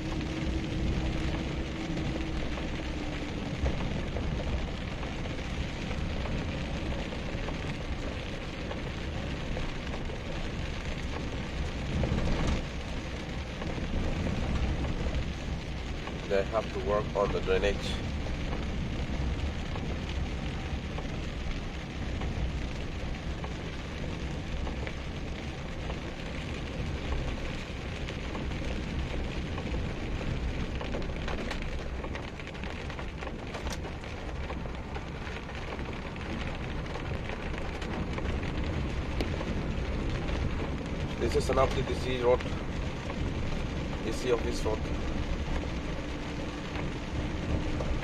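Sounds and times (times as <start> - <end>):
car driving on wet road: 0.0 - 48.0
rain on a car: 0.0 - 48.0.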